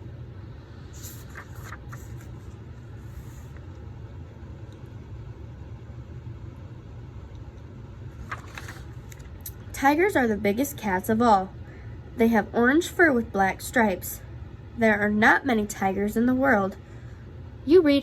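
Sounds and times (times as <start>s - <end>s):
low room rumble: 0.0s - 18.0s
faint rustles or clicks: 1.0s - 3.8s, 8.2s - 9.3s.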